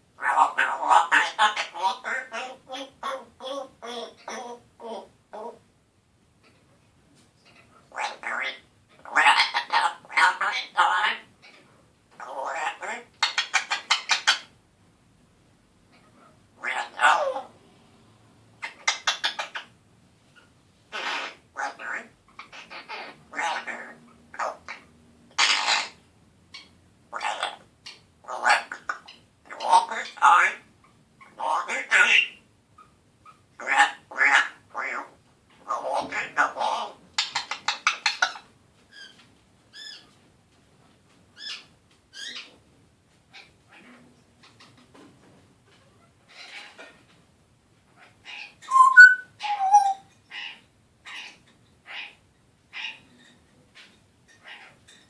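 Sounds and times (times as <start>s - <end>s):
parrot calling: 0.2s - 5.6s, 7.4s - 14.6s, 15.9s - 17.6s, 18.6s - 19.8s, 20.4s - 40.2s, 41.4s - 42.6s, 45.9s - 47.0s, 48.0s - 55.0s
parrot whistled calls: 48.6s - 50.1s.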